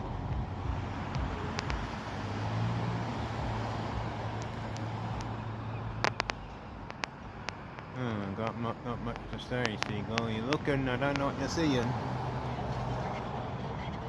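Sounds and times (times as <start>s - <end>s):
low engine hum: 0.0s - 14.0s
road traffic noise: 0.0s - 14.0s
sharp clicks: 1.1s - 2.0s, 3.6s - 12.0s.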